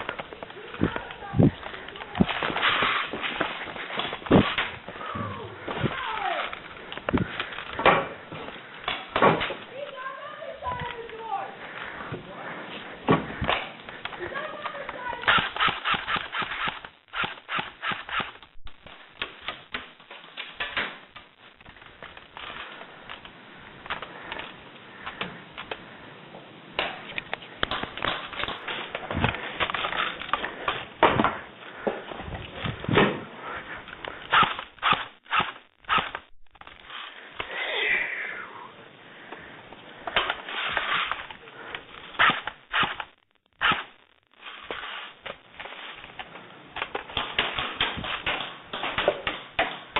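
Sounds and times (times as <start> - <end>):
airsoft guns firing: 14.6 - 19.8, 34.3 - 36.3.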